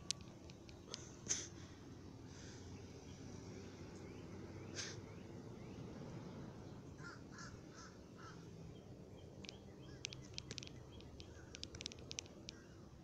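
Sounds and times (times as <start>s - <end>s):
bird calls: 4.0s - 5.9s, 6.9s - 12.9s.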